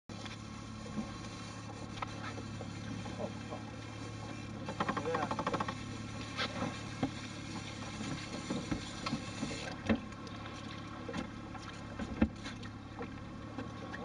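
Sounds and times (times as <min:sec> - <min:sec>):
outboard motor humming: 0:00.1 - 0:14.0
knocks and clicks on a boat: 0:04.5 - 0:14.0.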